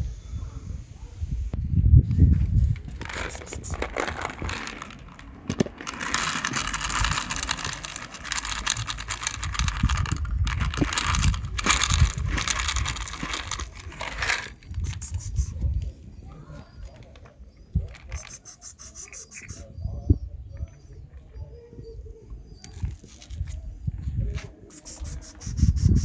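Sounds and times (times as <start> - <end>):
rustling and crinkling: 2.1 - 19.6, 22.7 - 26.0.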